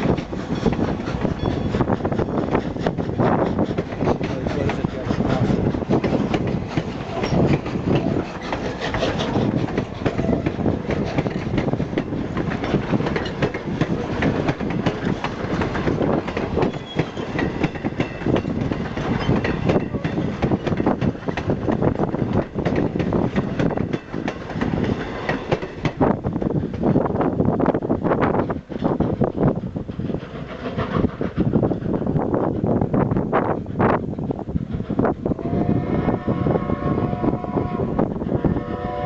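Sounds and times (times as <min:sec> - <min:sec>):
wheels clacking over track: 0:00.0 - 0:26.0
train wheels rumbling on rails: 0:00.0 - 0:39.0.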